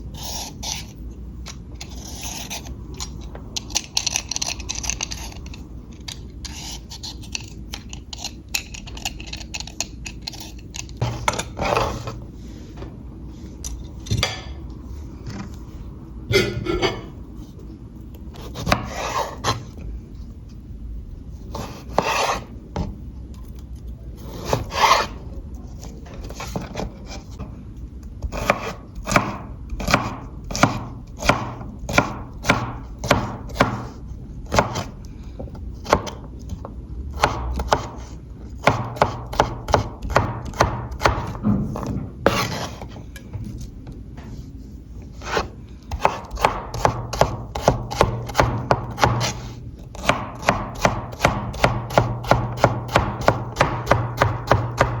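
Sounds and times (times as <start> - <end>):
knife scraping on board: 0.1 - 1.0, 1.8 - 2.7, 6.4 - 8.4, 9.0 - 12.2, 18.4 - 19.8, 21.5 - 22.5, 24.2 - 25.2, 28.3 - 29.2, 41.2 - 43.0, 45.2 - 48.4, 49.0 - 50.1
knife chopping on wooden board: 28.3 - 34.9, 37.2 - 38.0, 38.6 - 42.8, 45.2 - 55.0.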